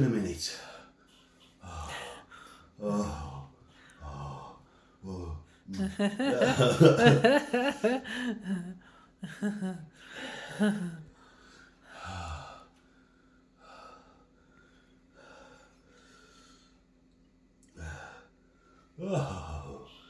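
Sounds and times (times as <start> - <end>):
man breathing heavily: 0.6 - 5.7, 9.9 - 16.9, 17.7 - 20.0
man moaning: 2.8 - 8.4, 19.0 - 20.0.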